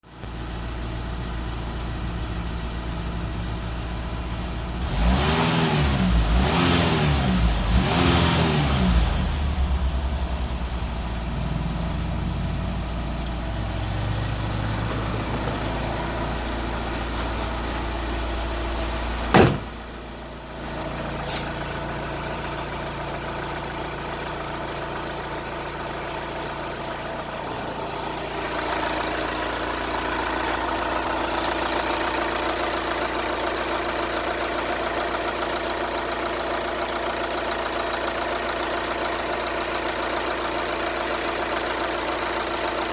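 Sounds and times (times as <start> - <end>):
van engine idling and revving: 0.0 - 42.9
sharp thump: 19.3 - 20.0.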